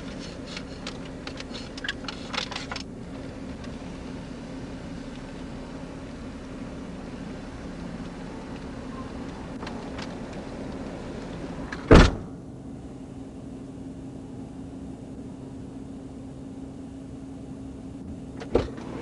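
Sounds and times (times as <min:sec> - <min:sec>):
outside hiss: 0:00.0 - 0:17.6
vehicle cabin hum: 0:00.0 - 0:19.0
car door slamming: 0:11.6 - 0:12.4, 0:18.4 - 0:19.0.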